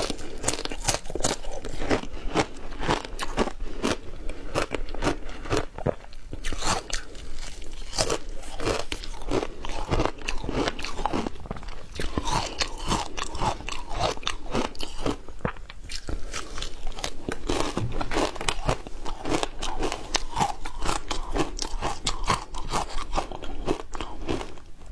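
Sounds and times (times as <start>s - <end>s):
person crunching frozen ice: 0.0s - 24.6s.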